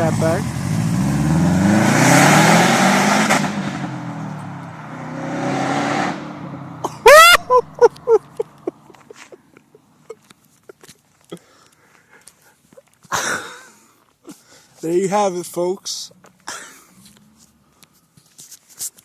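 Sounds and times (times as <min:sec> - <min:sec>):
car engine revving: 0:00.0 - 0:06.9.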